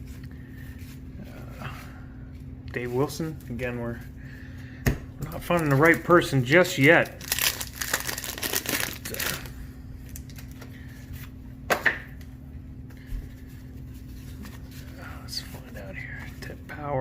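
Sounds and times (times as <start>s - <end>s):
faint steady hum: 0.0s - 17.0s
card pack tearing and crinkling: 5.4s - 10.6s.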